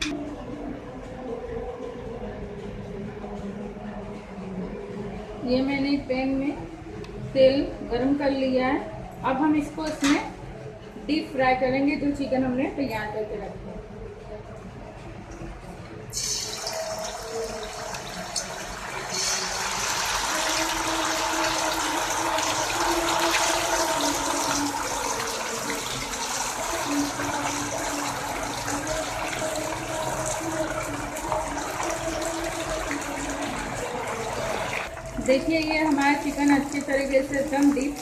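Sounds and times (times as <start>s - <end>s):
chicken sizzling in hot oil: 16.1s - 35.0s.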